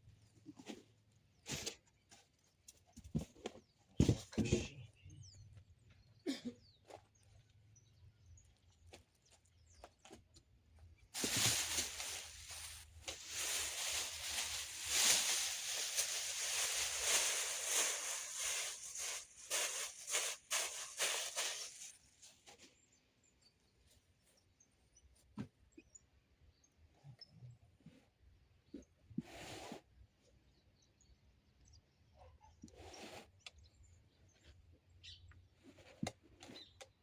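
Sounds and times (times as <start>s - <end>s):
packaging rustling and crinkling: 11.2s - 22.0s.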